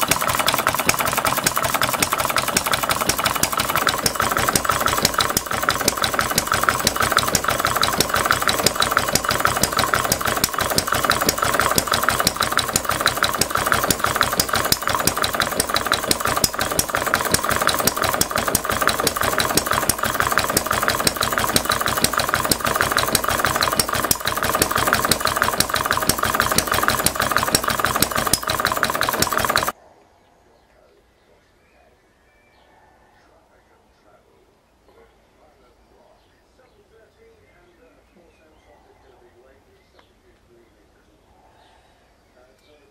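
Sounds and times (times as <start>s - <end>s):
stationary engine running: 0.0s - 29.8s.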